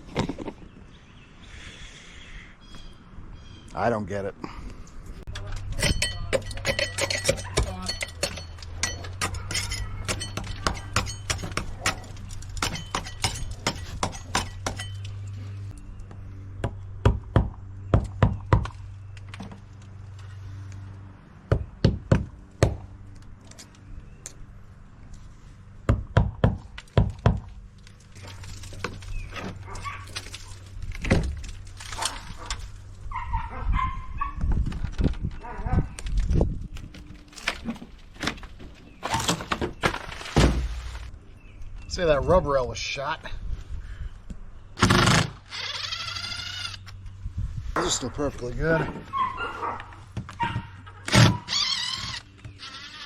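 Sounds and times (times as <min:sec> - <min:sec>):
metal clinks and knocks: 0:05.3 - 0:15.3
hammer striking metal: 0:05.8 - 0:12.0.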